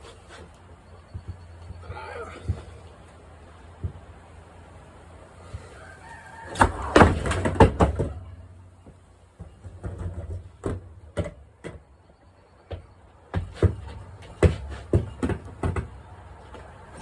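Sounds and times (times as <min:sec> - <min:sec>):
skateboard clattering on floor: 0:06.5 - 0:08.3, 0:13.4 - 0:17.0.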